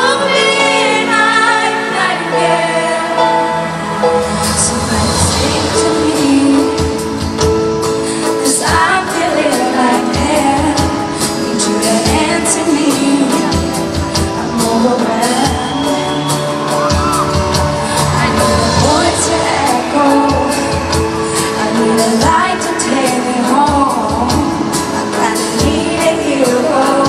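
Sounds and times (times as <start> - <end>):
woman singing pop ballad: 0.0 - 3.5, 4.2 - 27.0
band chords and drum hits: 3.6 - 9.3, 13.2 - 27.0.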